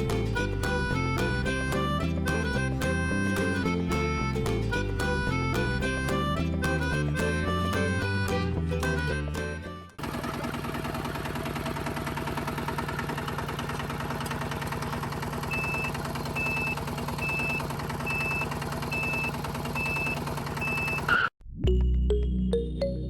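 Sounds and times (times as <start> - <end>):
small tractor engine running: 0.0 - 21.3
reversing beeper: 15.5 - 21.3.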